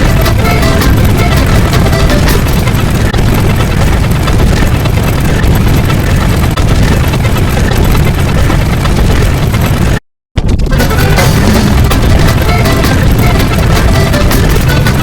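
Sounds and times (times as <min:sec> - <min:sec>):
loud steady rumbling: 0:00.0 - 0:15.0.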